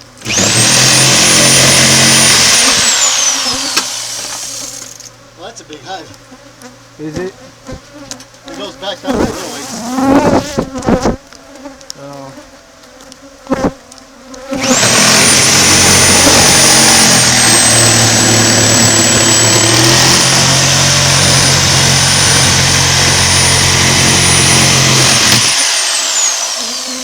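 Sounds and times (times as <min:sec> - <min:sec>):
electric motor whining: 0:00.0 - 0:06.0, 0:08.5 - 0:11.3, 0:14.5 - 0:27.0.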